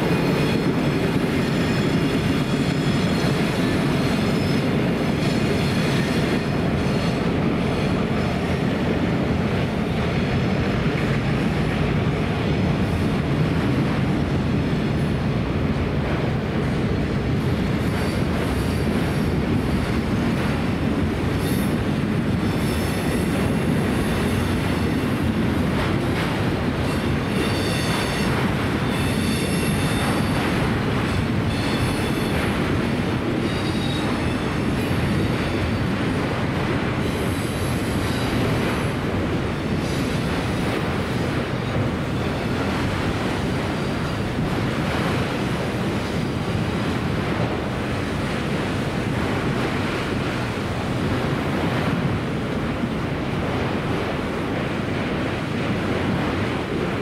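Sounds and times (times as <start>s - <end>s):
train wheels squealing: 0.0s - 8.4s, 17.8s - 20.1s, 21.4s - 25.2s, 26.7s - 32.6s, 33.4s - 36.1s, 37.0s - 39.0s, 39.7s - 40.9s
train rumbling on rails: 0.0s - 57.0s.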